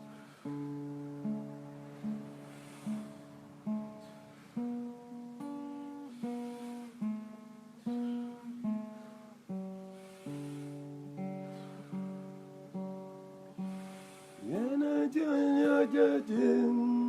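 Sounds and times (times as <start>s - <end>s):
acoustic guitar strummed chords: 0.0s - 17.0s.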